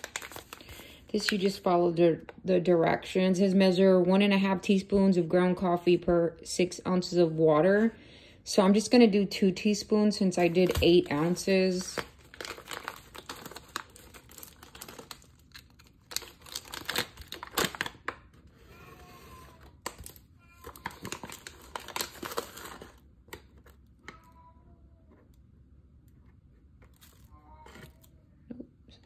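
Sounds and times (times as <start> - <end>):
packaging crinkling and rustling: 0.0 - 1.6, 10.3 - 18.6, 19.4 - 24.4, 26.6 - 28.1.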